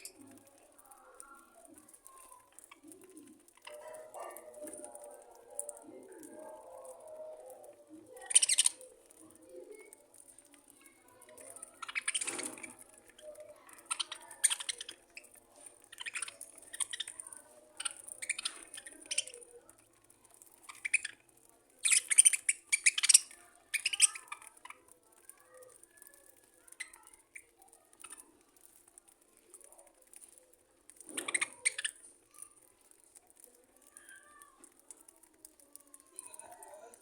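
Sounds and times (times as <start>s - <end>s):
budgerigars chirping and chattering: 8.2s - 8.8s, 11.8s - 12.8s, 13.8s - 15.4s, 16.0s - 17.2s, 17.8s - 19.4s, 21.8s - 24.4s.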